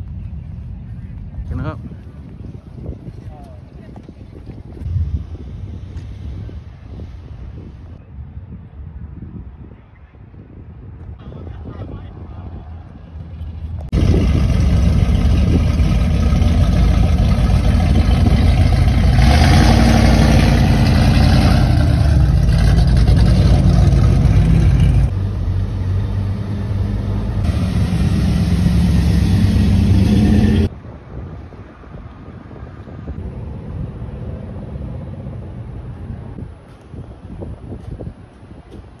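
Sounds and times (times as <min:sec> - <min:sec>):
car engines revving: 0:12.4 - 0:30.7.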